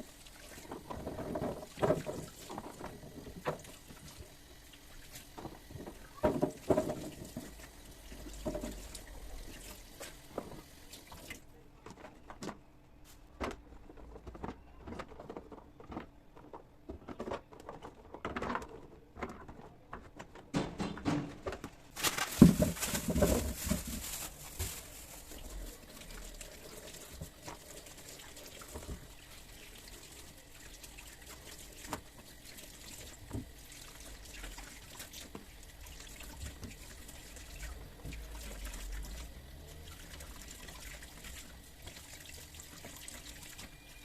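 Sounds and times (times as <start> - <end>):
tap water running into sink: 0.0 - 11.4, 25.3 - 44.0
produce and containers clattering: 0.0 - 12.7, 13.3 - 30.5.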